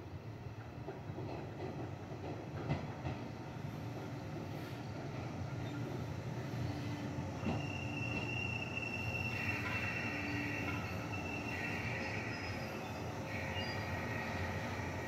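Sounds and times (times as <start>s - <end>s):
train running gear rumbling: 0.4s - 15.0s
wheel and brake squeals: 6.6s - 14.6s.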